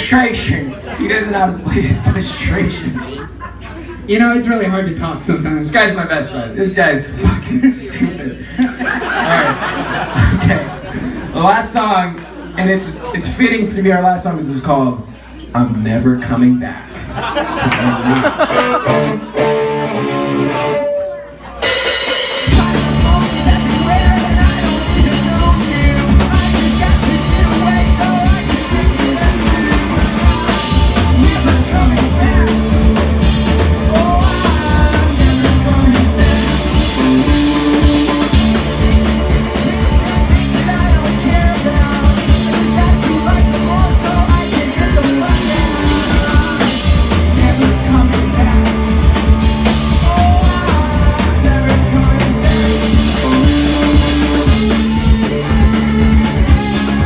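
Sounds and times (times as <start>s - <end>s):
live rock band playing: 8.8s - 11.3s, 17.2s - 57.0s
person singing: 22.4s - 57.0s.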